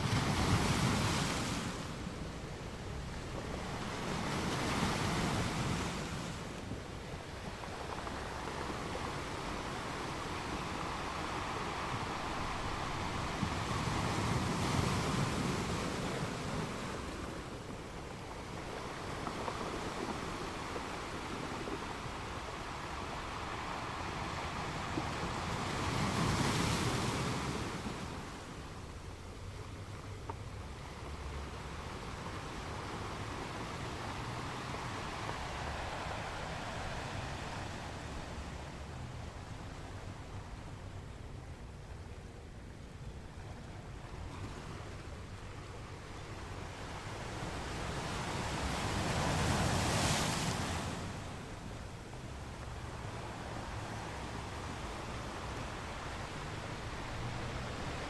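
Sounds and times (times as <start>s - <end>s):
surf surging: 0.0s - 41.2s, 44.3s - 58.0s
sea waves washing in: 0.0s - 42.6s, 43.2s - 58.0s.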